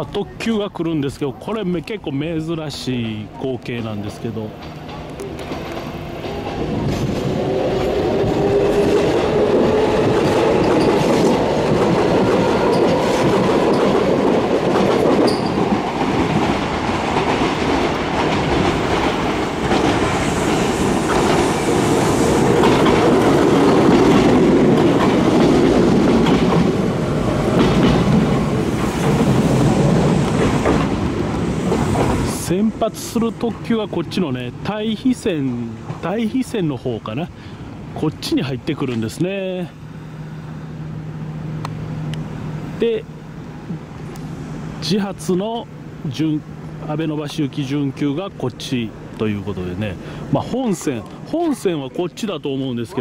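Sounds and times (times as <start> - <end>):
train wheels clattering over rails: 4.5 - 34.0.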